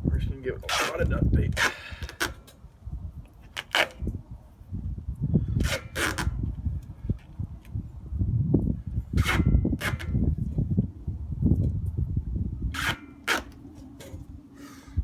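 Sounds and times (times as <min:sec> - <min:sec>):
tape ripping: 0:00.7 - 0:02.5, 0:03.4 - 0:04.1, 0:05.6 - 0:06.4, 0:09.2 - 0:10.2, 0:12.8 - 0:14.2
tape crinkling handling noise: 0:00.7 - 0:04.2.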